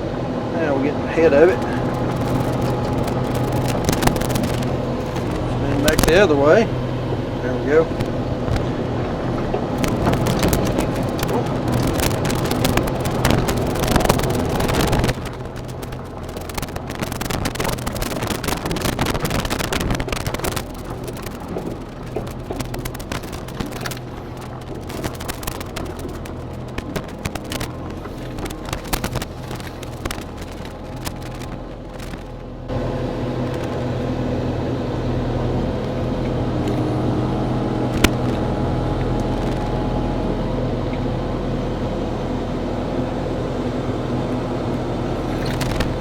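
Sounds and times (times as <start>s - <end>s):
diesel excavator engine: 0.0s - 46.0s
wood cracking and snapping: 1.3s - 6.2s, 7.9s - 32.7s, 37.9s - 39.8s, 45.4s - 46.0s.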